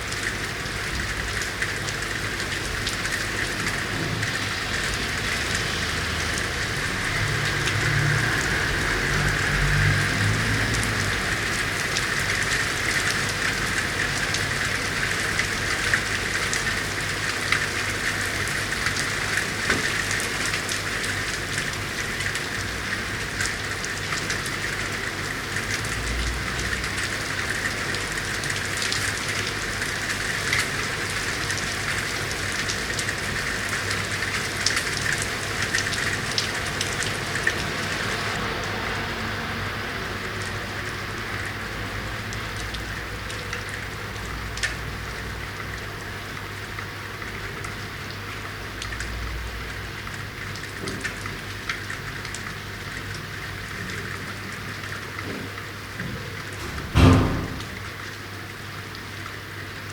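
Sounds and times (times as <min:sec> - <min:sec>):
rain falling on street: 0:00.0 - 0:59.9
raindrops ticking: 0:42.1 - 0:58.2.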